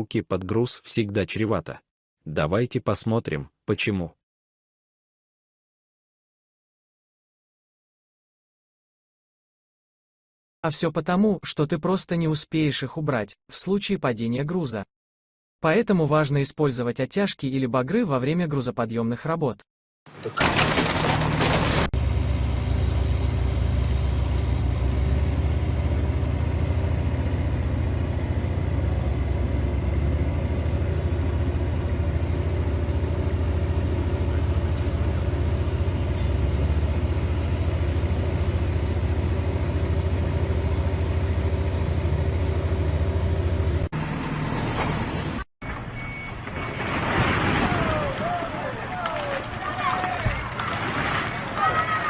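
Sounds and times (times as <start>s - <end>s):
large engine rumbling: 20.4s - 46.3s.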